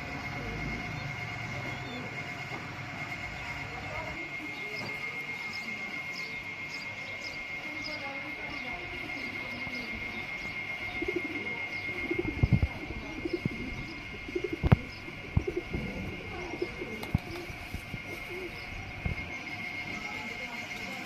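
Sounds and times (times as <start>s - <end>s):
pigeons cooing: 0.0s - 3.7s, 4.5s - 21.0s
high-pitched whine: 0.0s - 21.0s.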